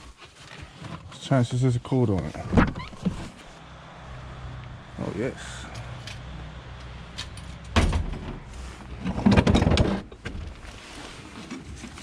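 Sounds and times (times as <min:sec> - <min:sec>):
low steady hum: 0:03.1 - 0:09.5.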